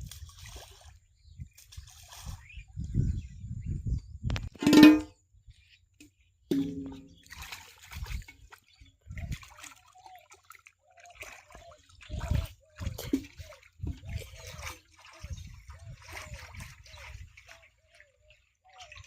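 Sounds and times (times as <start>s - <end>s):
dull low thumps: 6.5s - 7.3s
shallow water splashing: 6.5s - 19.0s.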